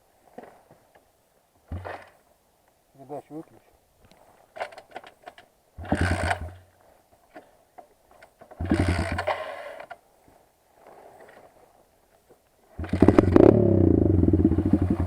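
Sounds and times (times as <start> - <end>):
electric starter cranking engine: 5.8 - 6.5, 8.6 - 9.4, 12.8 - 15.0.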